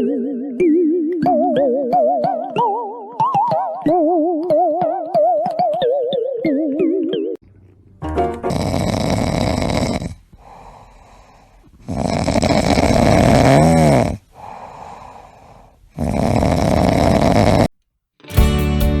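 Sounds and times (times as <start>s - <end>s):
guitar music: 8.0s - 8.8s, 18.2s - 19.0s
pet snoring: 8.5s - 10.9s, 11.8s - 17.7s
quiet breaths: 8.5s - 17.7s.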